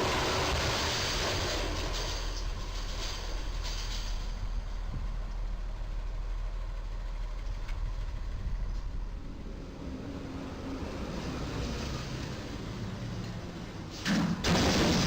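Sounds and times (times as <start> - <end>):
truck diesel engine running: 0.0 - 9.8
traffic rumble: 0.0 - 15.0.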